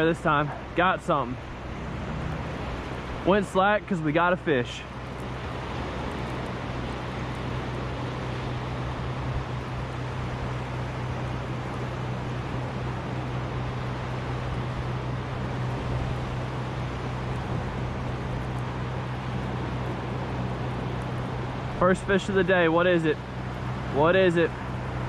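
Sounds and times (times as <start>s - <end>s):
low hum: 0.0s - 25.0s
surf rushing: 0.0s - 25.0s.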